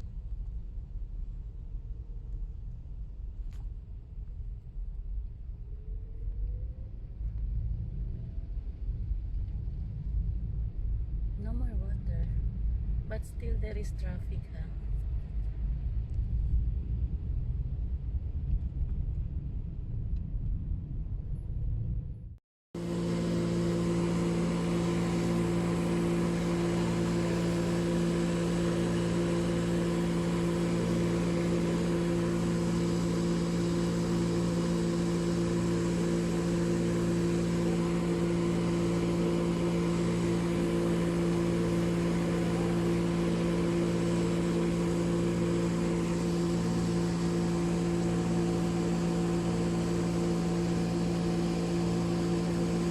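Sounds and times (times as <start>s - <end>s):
low rumble: 0.0s - 52.9s
suction truck engine and pump droning: 22.8s - 52.9s.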